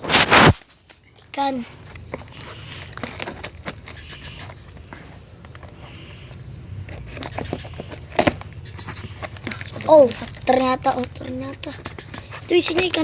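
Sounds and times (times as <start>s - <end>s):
package scraping and tearing: 0.0s - 13.0s.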